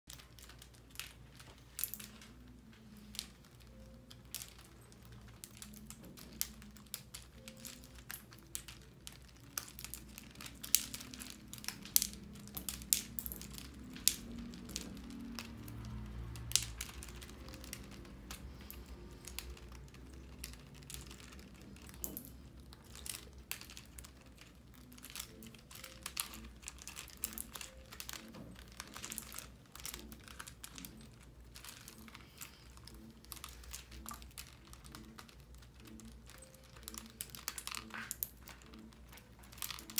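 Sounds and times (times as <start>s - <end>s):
plastic pegs clicking and clattering: 0.1s - 39.9s.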